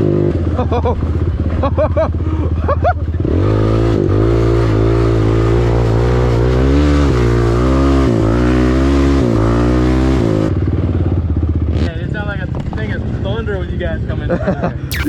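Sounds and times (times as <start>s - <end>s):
dirt bike engine running: 0.3s - 5.8s.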